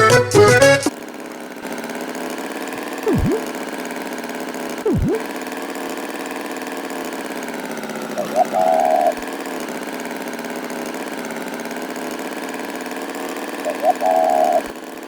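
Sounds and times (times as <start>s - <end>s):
accordion music: 0.0s - 0.9s
engine idling with flutter: 0.0s - 15.0s
swooping tone: 3.1s - 3.6s, 4.9s - 5.3s.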